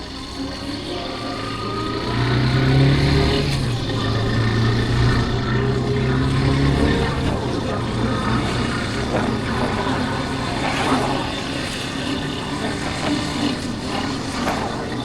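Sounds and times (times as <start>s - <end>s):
motorcycle engine under throttle: 0.0s - 15.0s.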